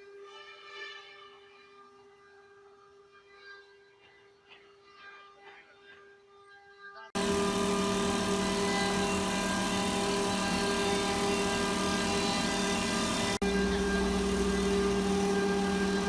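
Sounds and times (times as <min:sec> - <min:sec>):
wood cutting noise: 0:07.2 - 0:16.0
wood lathe motor whine: 0:07.2 - 0:16.0.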